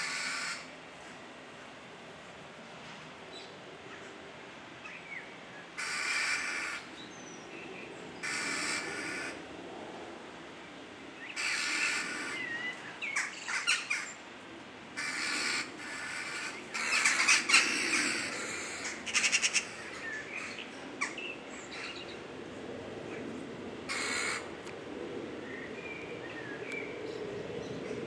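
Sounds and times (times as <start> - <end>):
birds squawking: 15.0 - 20.6, 23.9 - 24.4.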